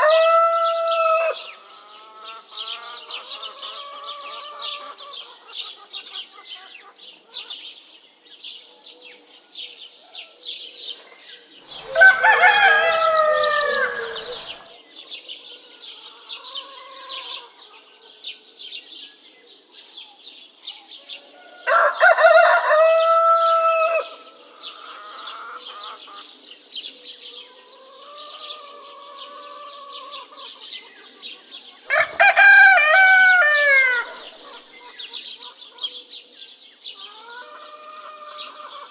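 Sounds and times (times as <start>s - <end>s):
rooster crowing: 0.0s - 1.4s, 11.7s - 14.7s, 21.6s - 24.2s, 31.9s - 34.6s
hens clucking softly: 11.7s - 14.7s
high chirping: 11.7s - 14.7s.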